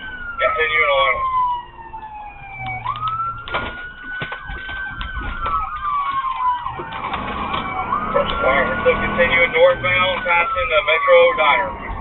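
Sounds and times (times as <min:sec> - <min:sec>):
patrol car engine and road noise: 0:00.0 - 0:12.0
police siren wailing: 0:00.0 - 0:12.0
police siren yelping: 0:00.0 - 0:12.0.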